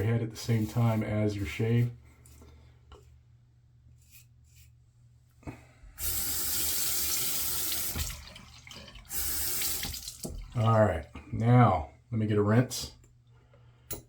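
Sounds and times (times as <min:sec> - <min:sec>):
water running into sink: 0:06.0 - 0:10.7.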